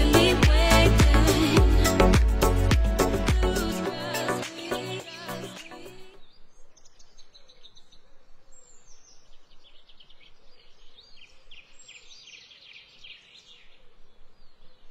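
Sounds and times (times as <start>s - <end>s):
small birds chirping: 4.9s - 14.9s.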